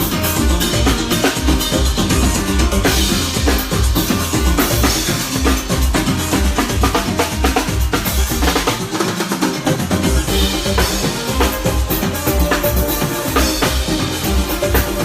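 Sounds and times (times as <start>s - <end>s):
bass drum and snare: 0.0s - 15.0s
live band playing: 0.0s - 15.0s.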